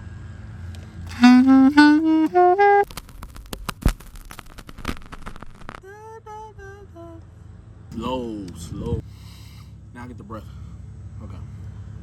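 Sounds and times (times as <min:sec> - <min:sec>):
saxophone phrase: 0:01.1 - 0:02.8.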